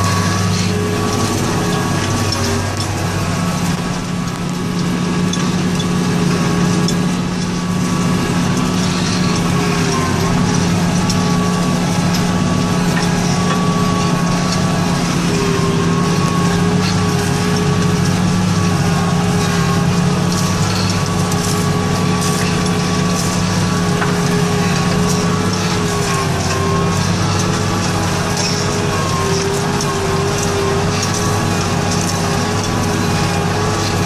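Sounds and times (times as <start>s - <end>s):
steady engine whine: 0.0s - 34.0s
tractor engine running under load: 0.0s - 34.0s.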